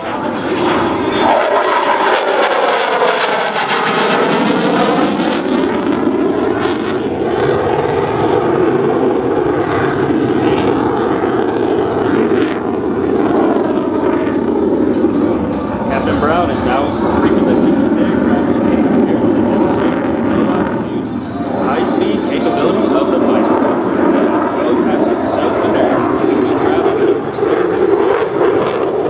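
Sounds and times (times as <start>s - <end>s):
jet engine roar: 0.0s - 29.0s.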